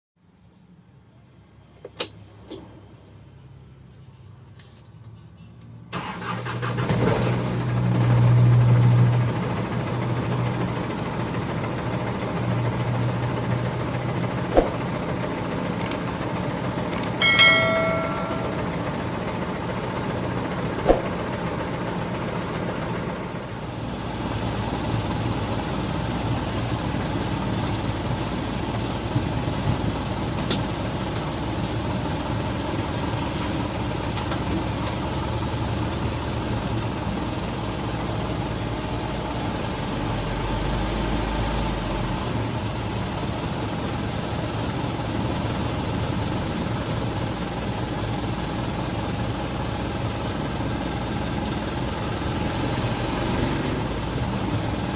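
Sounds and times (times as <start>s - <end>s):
truck engine running: 6.0s - 54.9s.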